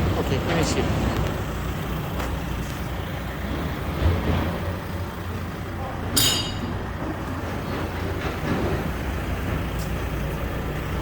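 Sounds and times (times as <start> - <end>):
bus diesel engine rumbling: 0.0 - 11.0
sharp metallic clink: 6.2 - 6.8.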